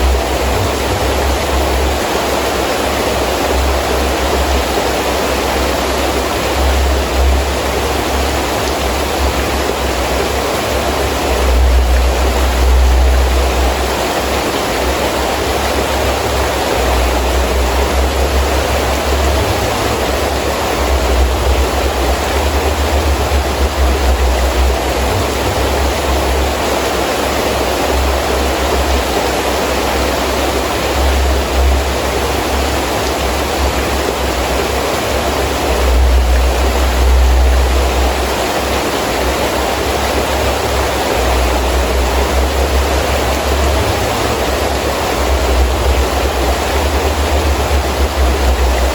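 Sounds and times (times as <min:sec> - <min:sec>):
gusting wind rumble: 0:00.0 - 0:48.9
heavy rain: 0:00.0 - 0:48.9.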